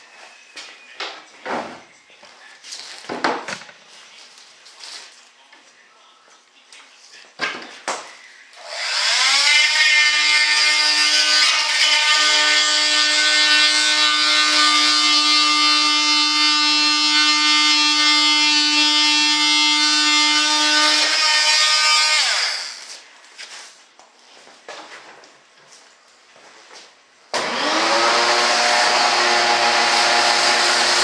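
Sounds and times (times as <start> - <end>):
power tool whining: 8.6 - 22.9, 27.4 - 31.0.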